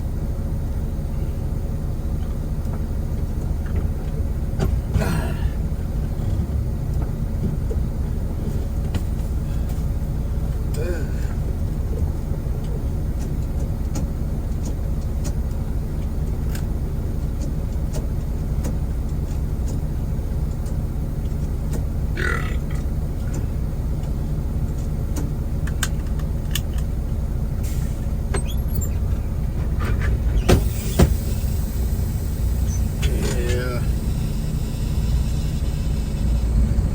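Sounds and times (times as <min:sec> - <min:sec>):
diesel truck engine rumbling: 0:00.0 - 0:36.9
short squeak: 0:28.3 - 0:29.0, 0:32.6 - 0:33.1.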